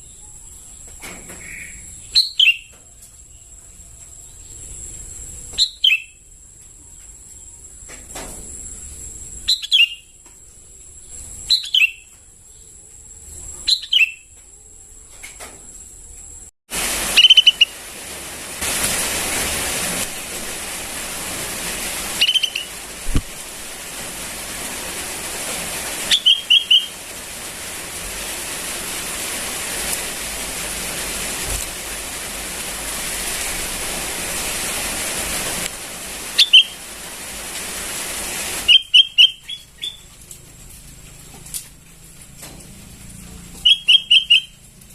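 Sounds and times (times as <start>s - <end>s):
bird chirps: 0.0s - 2.8s, 5.5s - 6.2s, 9.5s - 10.2s, 11.1s - 12.7s, 13.5s - 14.3s, 17.2s - 17.7s, 22.2s - 22.7s, 26.1s - 27.0s, 36.4s - 36.8s, 38.7s - 40.2s, 43.6s - 44.6s
steady hiss: 15.2s - 44.9s.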